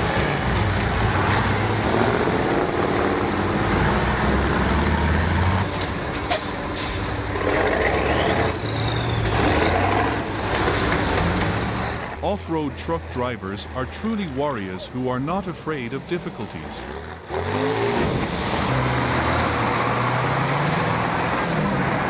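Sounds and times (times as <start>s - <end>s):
diesel truck engine revving: 0.0s - 22.0s.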